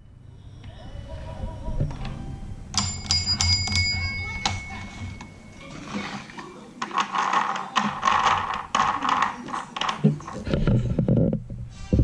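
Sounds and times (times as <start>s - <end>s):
plastic toy clicking and rattling: 6.8s - 10.6s.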